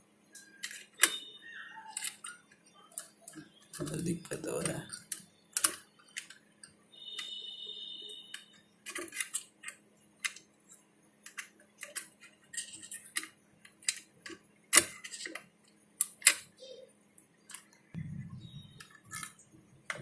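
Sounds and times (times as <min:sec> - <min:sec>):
multimeter beep: 0:01.0 - 0:02.0, 0:07.0 - 0:08.7, 0:18.0 - 0:19.2.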